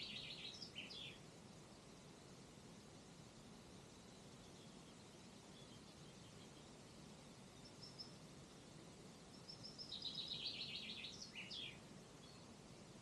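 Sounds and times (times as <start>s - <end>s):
faint high chirps: 0.0s - 1.3s, 3.9s - 12.6s
songbird singing a trill: 0.0s - 2.1s, 3.5s - 13.0s
faint outdoor hiss: 0.0s - 13.0s.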